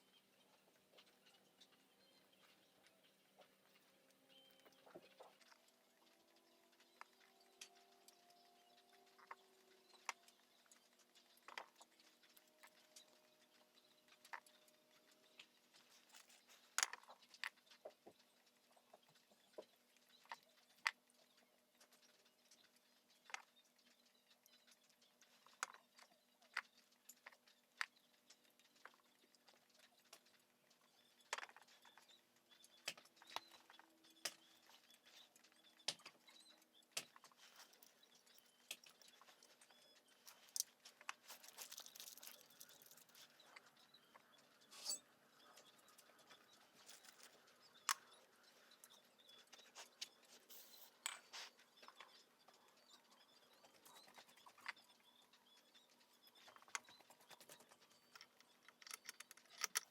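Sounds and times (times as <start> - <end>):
tools and metal parts clinking: 37.0 - 43.7, 44.6 - 48.1, 48.8 - 52.1, 56.3 - 59.9.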